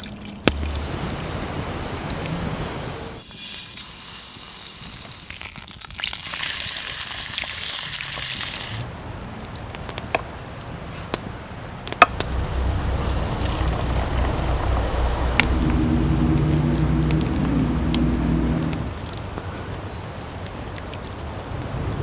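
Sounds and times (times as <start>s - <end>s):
food sizzling in a hot pan: 3.2s - 8.8s.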